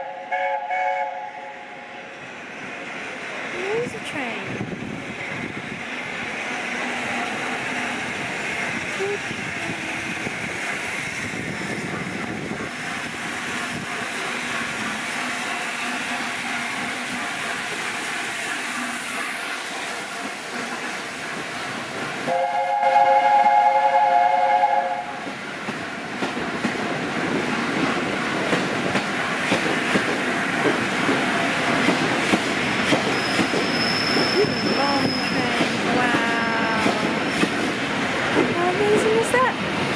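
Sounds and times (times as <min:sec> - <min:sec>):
locomotive whistle chord: 0:00.0 - 0:01.8, 0:22.3 - 0:25.2
train rail noise: 0:00.0 - 0:39.9.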